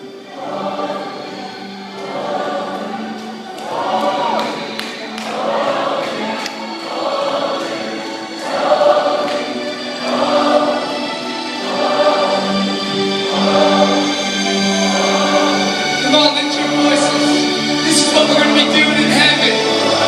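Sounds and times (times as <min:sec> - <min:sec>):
choir singing held phrases: 0:00.0 - 0:20.0
low sustained notes: 0:00.0 - 0:20.0.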